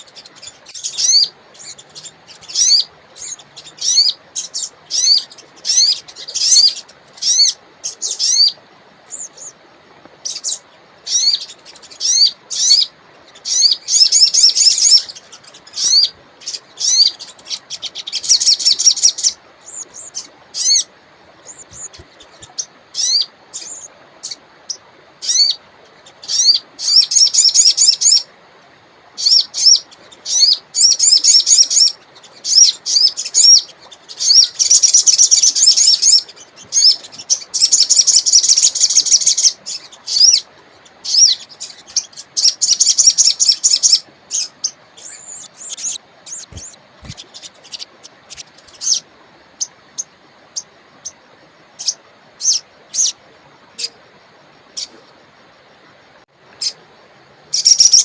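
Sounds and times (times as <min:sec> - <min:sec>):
bird chirping trills: 0:00.0 - 0:09.6, 0:10.2 - 0:28.3, 0:29.2 - 0:54.0, 0:57.5 - 0:58.0
river hiss: 0:00.0 - 0:58.0.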